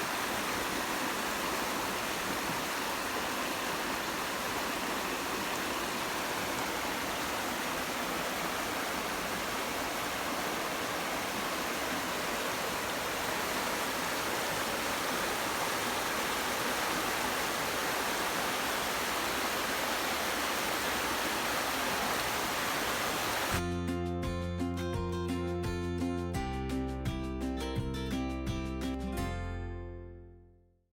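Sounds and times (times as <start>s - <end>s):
river rapids rushing: 0.0s - 23.6s.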